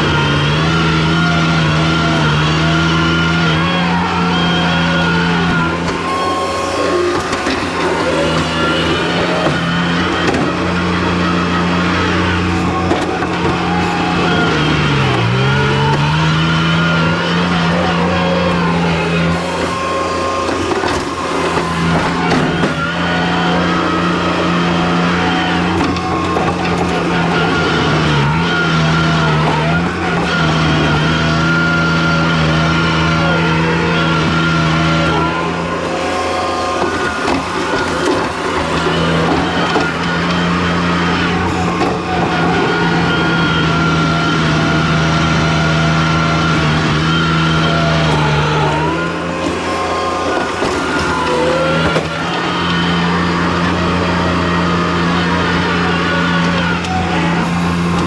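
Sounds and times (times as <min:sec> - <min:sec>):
skid steer engine running: 0:00.0 - 0:58.0.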